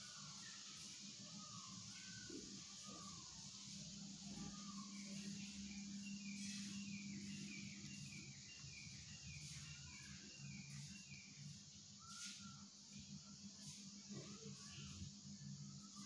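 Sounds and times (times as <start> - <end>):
bird chirping: 0.0 - 13.8
steady low hum: 0.0 - 16.0.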